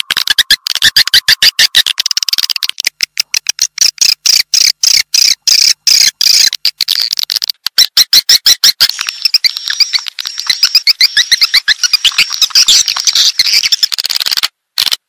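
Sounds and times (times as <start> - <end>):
swiftlet clicking chirps: 0.0 - 6.8, 7.7 - 14.2.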